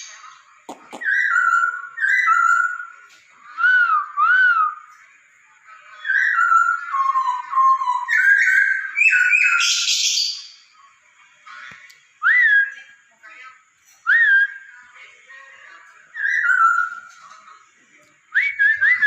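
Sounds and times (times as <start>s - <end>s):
laughingthrush whistled song: 0.9s - 3.0s, 3.6s - 4.9s, 6.1s - 10.5s, 18.3s - 19.0s.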